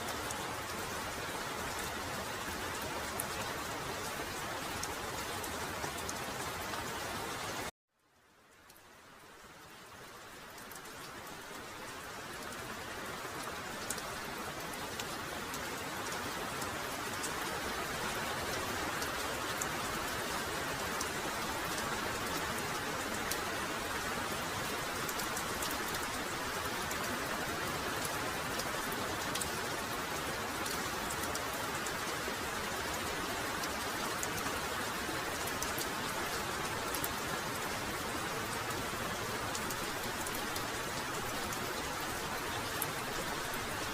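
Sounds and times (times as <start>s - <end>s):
heavy rain falling: 0.0s - 7.7s, 8.3s - 43.9s.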